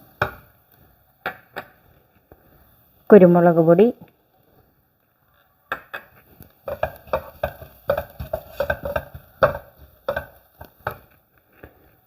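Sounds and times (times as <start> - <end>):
spoon scraping against a pan: 6.4 - 11.2.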